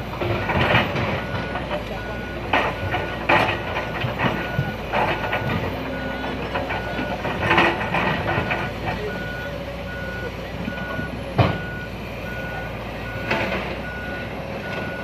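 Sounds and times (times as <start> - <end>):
excavator engine running: 0.0 - 15.0
travel alarm beeping: 1.2 - 3.1, 3.8 - 7.3, 8.3 - 15.0.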